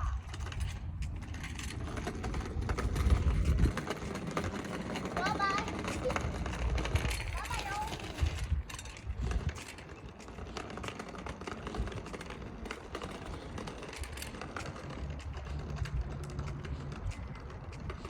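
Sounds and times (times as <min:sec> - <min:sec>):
low bicycle rumble: 0:00.0 - 0:18.0.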